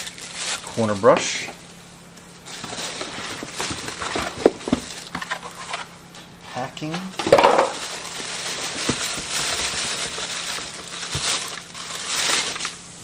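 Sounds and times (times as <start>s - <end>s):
packing material rustling: 0.0s - 1.4s, 2.4s - 5.9s, 7.5s - 12.9s.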